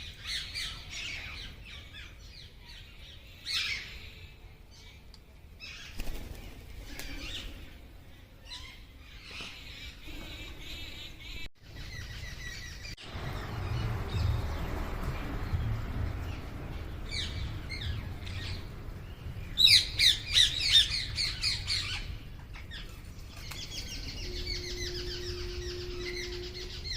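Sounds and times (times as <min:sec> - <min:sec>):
low rumble: 0:09.8 - 0:26.9.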